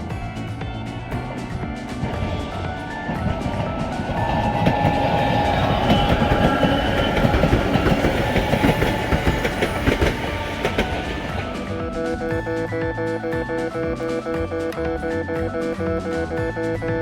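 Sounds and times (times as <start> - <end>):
train wheels clattering over rail joints: 1.0 - 12.4.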